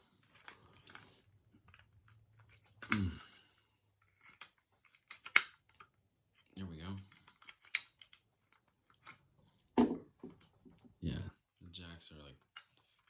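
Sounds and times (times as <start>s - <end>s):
person grunting: 2.9s - 3.4s
clicks and scraping of jacks: 4.0s - 10.9s.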